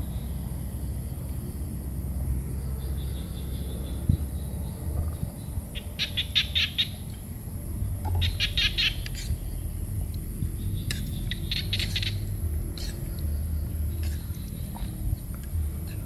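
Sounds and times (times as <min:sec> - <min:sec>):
low steady rumble: 0:00.0 - 0:16.0
bird chattering calls: 0:05.8 - 0:07.0, 0:08.1 - 0:09.5, 0:10.7 - 0:13.2.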